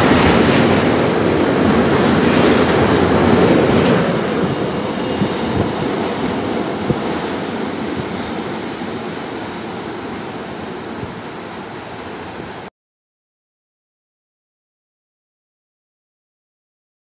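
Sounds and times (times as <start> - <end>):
freight train passing: 0.0 - 12.7.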